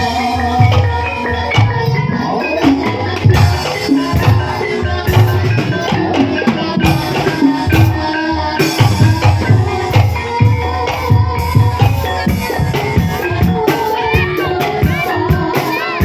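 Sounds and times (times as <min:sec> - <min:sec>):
metallophone notes: 0:00.0 - 0:16.0.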